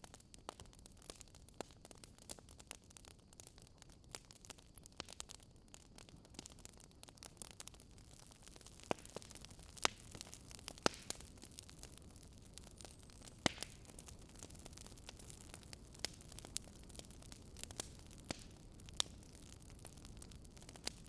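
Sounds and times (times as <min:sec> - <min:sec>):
faint steady hiss: 0:00.0 - 0:21.0
wood fire crackling: 0:00.1 - 0:21.0
sharp fire pops: 0:08.5 - 0:21.0.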